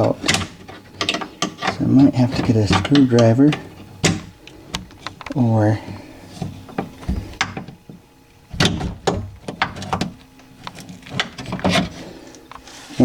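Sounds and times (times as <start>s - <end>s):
metal and plastic parts clicking: 0.0s - 5.4s.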